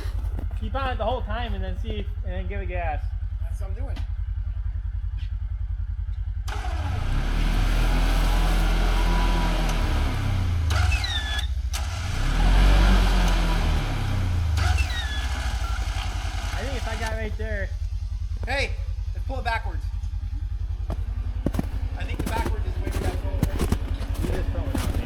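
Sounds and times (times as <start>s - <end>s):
utility vehicle engine revving: 0.0s - 25.0s
short high squeals: 8.0s - 11.6s, 14.6s - 16.3s.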